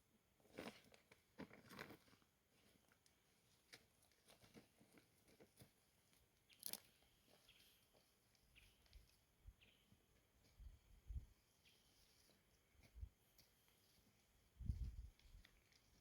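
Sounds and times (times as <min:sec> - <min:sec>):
faint crunches and clicks: 0:00.5 - 0:07.7, 0:15.1 - 0:16.0.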